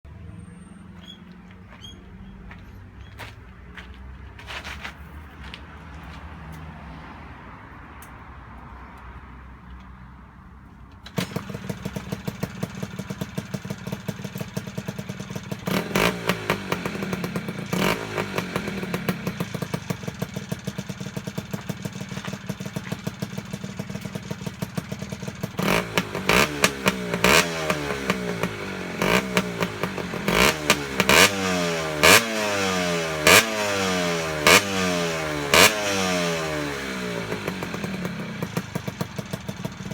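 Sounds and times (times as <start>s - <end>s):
two-stroke engine idling and revving: 11.0s - 39.9s.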